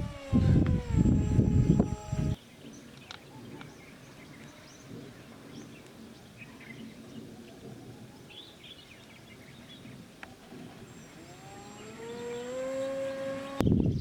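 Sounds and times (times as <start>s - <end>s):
small electric motor whining: 0.0s - 2.4s, 10.5s - 14.0s
birds chirping faintly: 0.0s - 14.0s
outdoor background noise: 0.0s - 14.0s.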